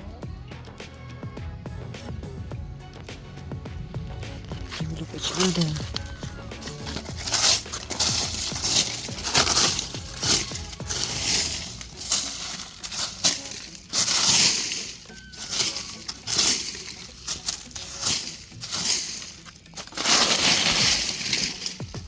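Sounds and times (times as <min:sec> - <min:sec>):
leaves rustling and crunching: 0:04.4 - 0:22.0.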